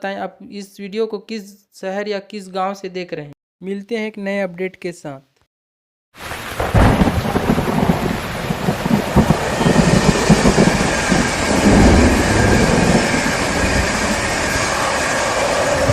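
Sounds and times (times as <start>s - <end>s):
steady rain: 6.2s - 15.9s
thunder rumbling: 6.3s - 15.9s.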